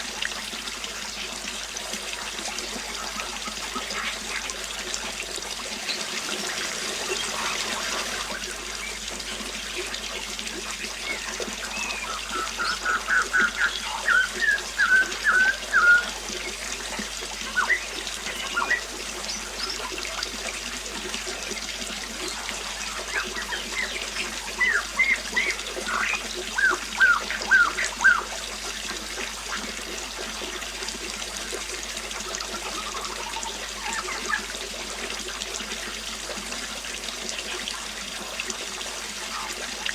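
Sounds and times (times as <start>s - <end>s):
water trickling: 0.0s - 39.9s
bird chirping: 11.0s - 16.6s, 17.5s - 19.9s, 22.3s - 28.3s.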